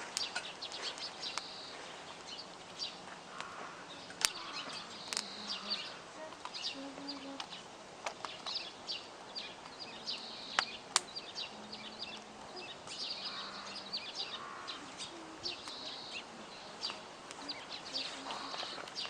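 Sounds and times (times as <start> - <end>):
campfire pops: 0.0 - 6.7, 7.3 - 11.4
campfire crackling: 0.0 - 19.0
small birds chirping: 0.0 - 19.0.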